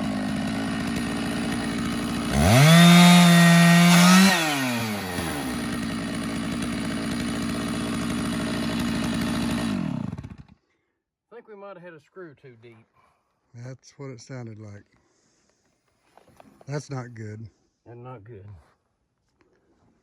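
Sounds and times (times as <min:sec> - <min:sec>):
chainsaw revving: 0:00.0 - 0:10.6.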